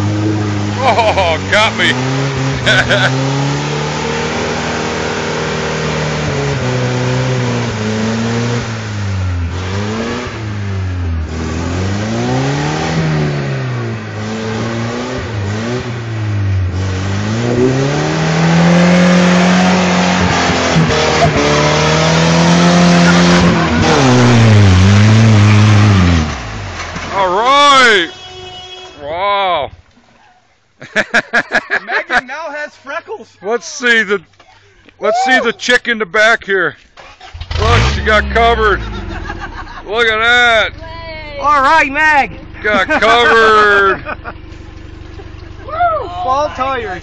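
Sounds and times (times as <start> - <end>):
tires spinning in mud: 0.0 - 28.1, 36.9 - 40.8, 41.4 - 47.0
truck engine revving hard: 0.0 - 28.1, 37.0 - 40.8, 41.4 - 47.0.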